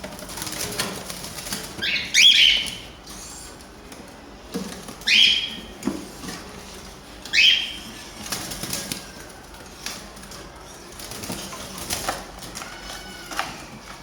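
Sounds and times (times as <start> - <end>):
wing flapping: 0.0 - 3.0.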